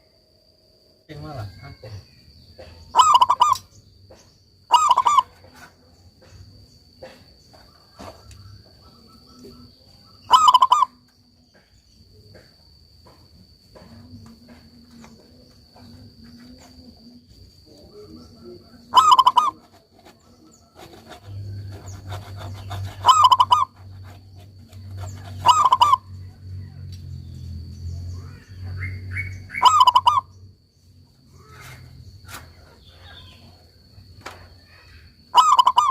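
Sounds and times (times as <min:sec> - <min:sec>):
dove cooing: 0:02.6 - 0:03.6, 0:04.7 - 0:05.7, 0:08.8 - 0:11.0, 0:17.8 - 0:26.8, 0:28.8 - 0:30.4, 0:35.3 - 0:35.9.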